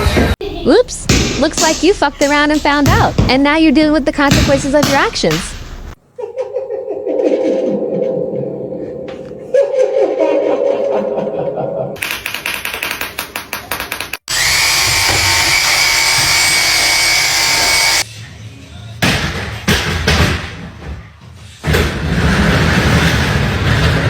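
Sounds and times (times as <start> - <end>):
power drill whining: 14.3 - 18.0.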